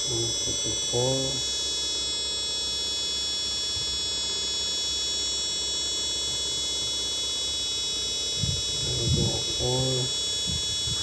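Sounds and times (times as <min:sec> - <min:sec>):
low hum: 0:00.0 - 0:01.6
power supply high-pitched whine: 0:00.0 - 0:11.0.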